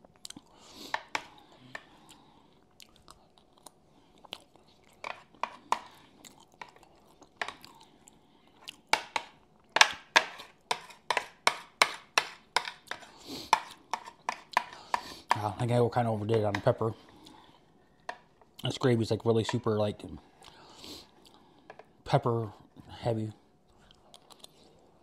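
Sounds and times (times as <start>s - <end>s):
chewing with wet mouth smacks: 2.0s - 5.0s.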